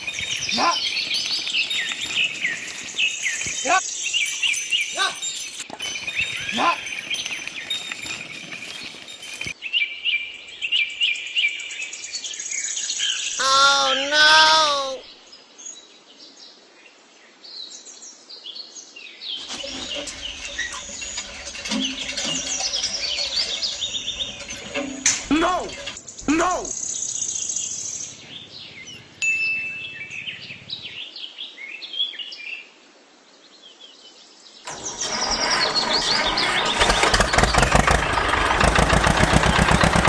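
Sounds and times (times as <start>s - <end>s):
birds chirping: 0.0s - 9.6s, 13.0s - 15.0s, 19.4s - 31.0s, 34.7s - 40.0s
insects chirping: 19.4s - 30.9s.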